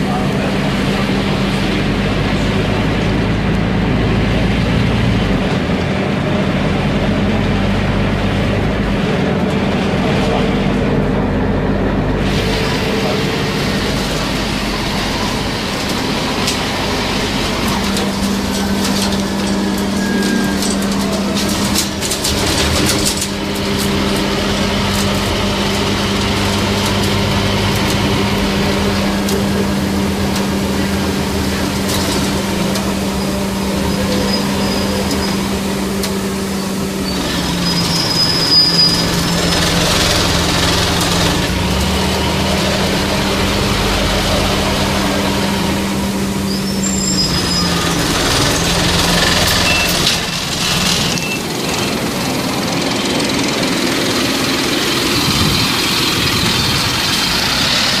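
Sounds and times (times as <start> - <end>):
bus diesel engine rattling: 0.0 - 58.0
brief high squeal: 37.0 - 39.3.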